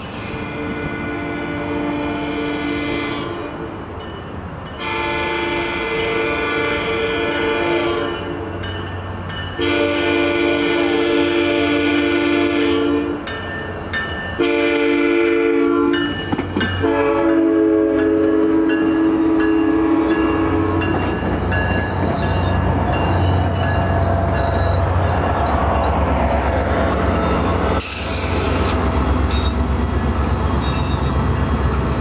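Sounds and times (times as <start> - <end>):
diesel locomotive engine: 0.0 - 32.0
train coaches rumbling past: 0.0 - 32.0
train horn blasts: 0.4 - 3.7, 4.8 - 8.5, 9.6 - 13.2, 14.4 - 16.1, 16.8 - 21.0.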